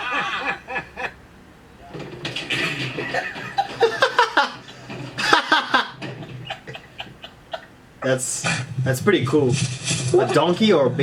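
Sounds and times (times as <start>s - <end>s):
person laughing: 0.0s - 1.2s, 3.0s - 7.7s.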